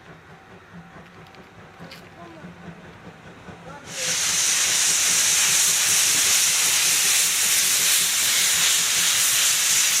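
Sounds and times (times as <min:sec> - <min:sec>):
steam locomotive hissing: 0:00.0 - 0:10.0.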